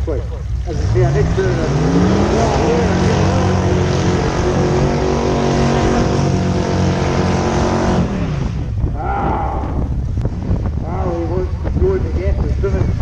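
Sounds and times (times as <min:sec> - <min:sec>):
racing car engine revving high: 0:00.6 - 0:09.9.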